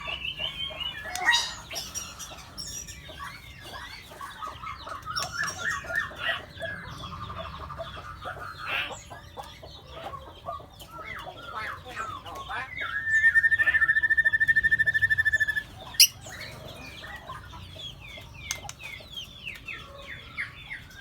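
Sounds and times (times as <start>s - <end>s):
birds calling and chirping: 0.0s - 21.0s
bird trill: 4.8s - 6.2s, 12.7s - 16.6s.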